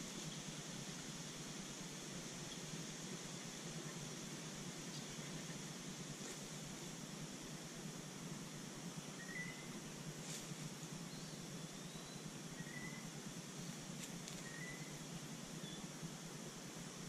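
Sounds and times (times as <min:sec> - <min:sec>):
steady outdoor hiss: 0:00.0 - 0:17.0
faint bird chirps: 0:09.0 - 0:10.0, 0:10.8 - 0:15.9.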